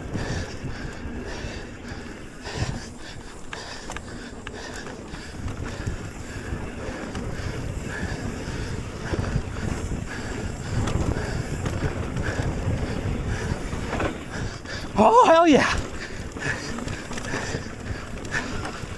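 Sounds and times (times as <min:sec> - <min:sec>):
tyres rumbling on dirt trail: 0:00.0 - 0:18.9
wind buffeting microphone: 0:00.0 - 0:18.9
bike clicks and knocks: 0:02.6 - 0:18.9.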